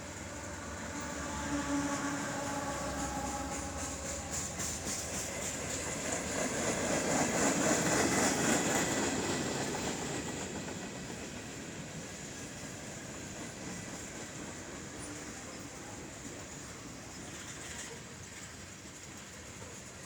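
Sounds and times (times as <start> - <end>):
freight train rolling past: 0.0 - 20.0
train wheels clacking over joints: 0.0 - 20.0.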